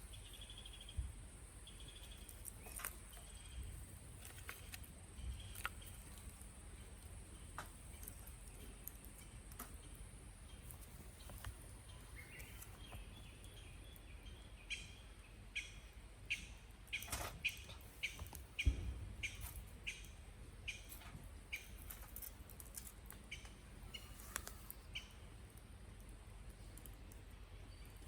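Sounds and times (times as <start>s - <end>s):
dull thump: 18.6s - 19.3s.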